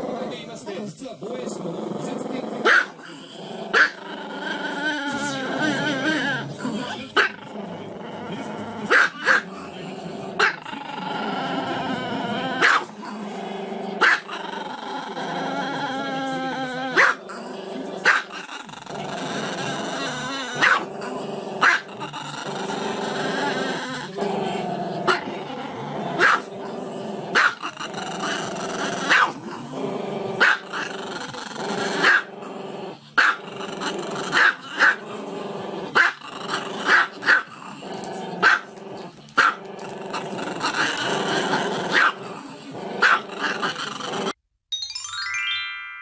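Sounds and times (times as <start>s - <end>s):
dog howling and growling: 10.4s - 17.2s, 18.2s - 44.4s.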